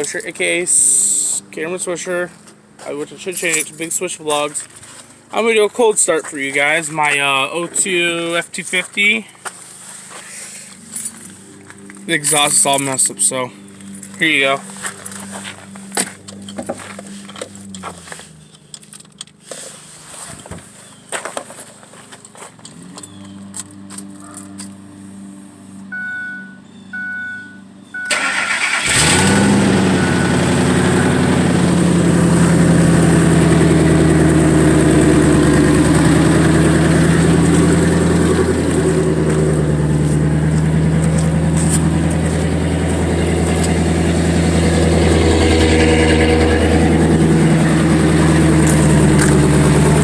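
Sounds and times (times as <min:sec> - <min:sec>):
short chime beeps: 0:25.9 - 0:28.2
engine cranking: 0:28.0 - 0:50.0
loud raw engine idle: 0:28.3 - 0:50.0.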